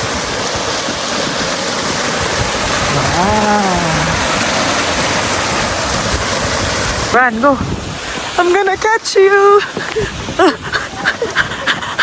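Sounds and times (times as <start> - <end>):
loud rushing noise: 1.3 - 8.4
person's drawn-out vocal sound: 2.9 - 4.4.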